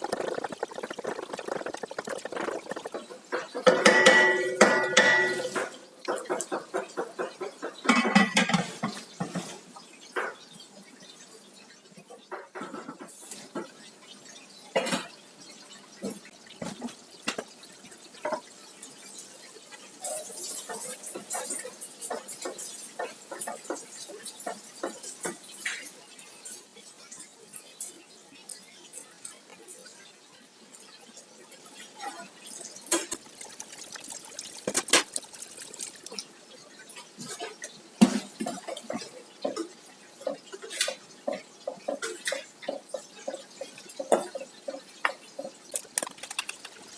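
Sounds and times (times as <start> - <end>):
liquid being poured: 0.0 - 5.4, 32.4 - 36.4, 45.7 - 46.9
liquid sounds: 0.0 - 7.4, 12.4 - 46.9
cookware knocks and clinks: 3.3 - 9.5.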